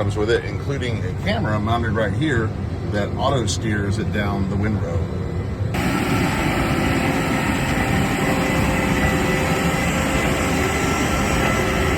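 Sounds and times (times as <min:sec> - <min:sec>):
faint steady whine: 0:00.0 - 0:11.9
tractor and baler running: 0:05.7 - 0:11.9.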